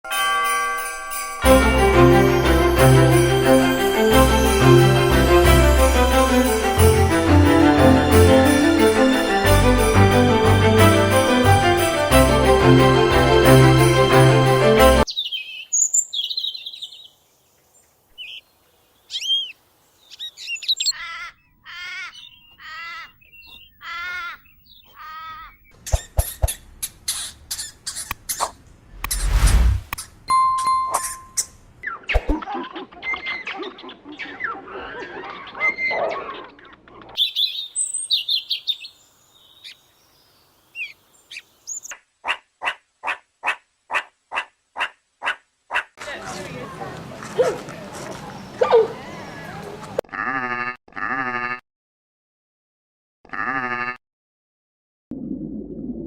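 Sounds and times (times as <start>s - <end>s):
birds chirping: 15.1s - 29.3s, 33.2s - 42.0s.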